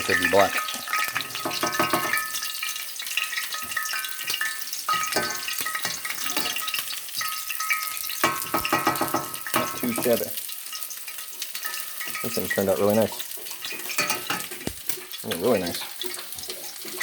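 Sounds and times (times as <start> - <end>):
fries sizzling in hot oil: 0.0 - 17.0
metallic clinks and scrapes: 3.3 - 8.7.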